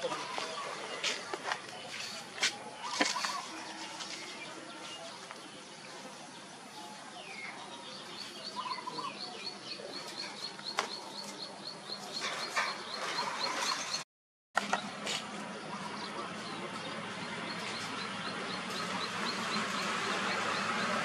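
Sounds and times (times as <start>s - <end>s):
scattered bird chirps: 2.8s - 4.2s.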